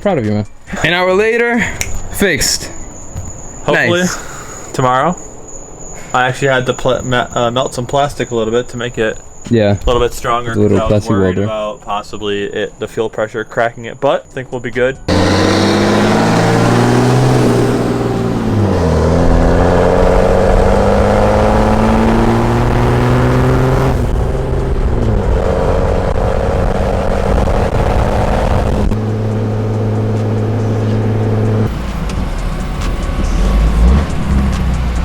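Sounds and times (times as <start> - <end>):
car engine accelerating through gears: 15.1 - 35.0.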